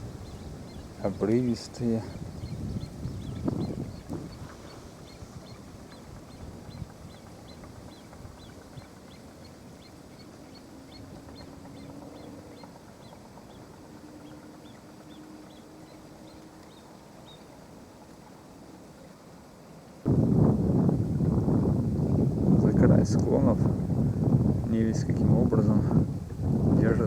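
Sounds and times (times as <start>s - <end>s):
small bird chirping: 0.0s - 17.6s
distant engine hum: 0.0s - 27.0s.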